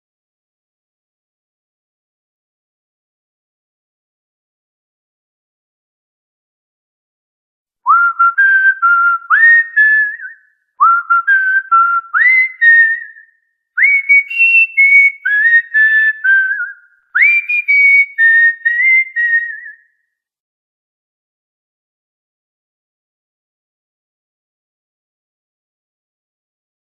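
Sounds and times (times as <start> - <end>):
person whistling a tune: 7.9 - 20.0.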